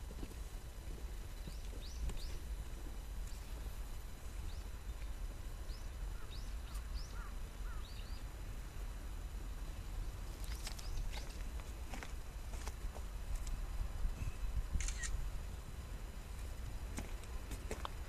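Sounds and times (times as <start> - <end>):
steady low rumble: 0.0 - 18.0
small birds chirping: 1.4 - 2.5, 4.4 - 8.3, 9.6 - 11.5.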